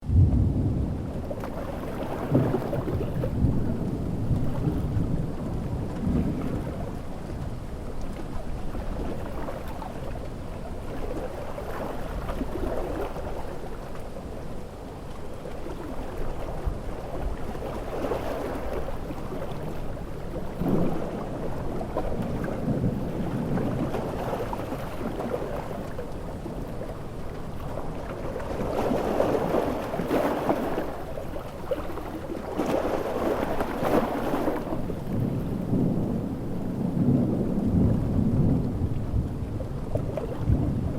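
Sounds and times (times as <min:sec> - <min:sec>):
thunder rumbling: 0:00.0 - 0:07.9, 0:19.6 - 0:29.9, 0:33.7 - 0:40.9
heavy rain: 0:00.0 - 0:08.8, 0:34.7 - 0:40.9
ocean waves breaking: 0:00.0 - 0:40.9.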